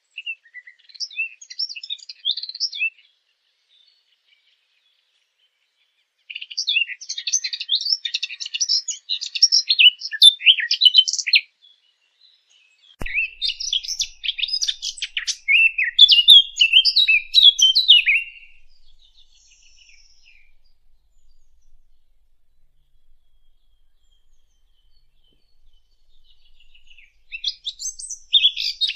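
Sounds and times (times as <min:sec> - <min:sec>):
faint click: 0:13.0 - 0:15.5
songbird warbling: 0:13.0 - 0:28.9.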